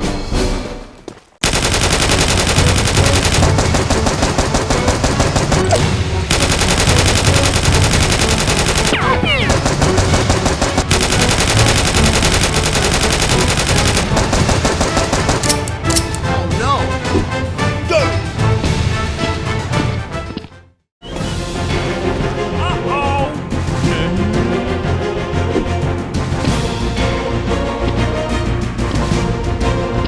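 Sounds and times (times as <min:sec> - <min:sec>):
music: 0:00.0 - 0:30.0
automatic gunfire: 0:01.4 - 0:15.8.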